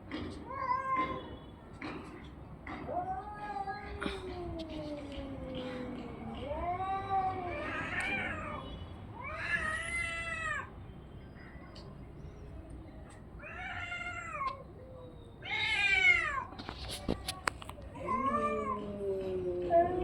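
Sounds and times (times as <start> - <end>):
cat meowing: 2.8 - 8.6, 15.4 - 16.6, 18.0 - 20.0.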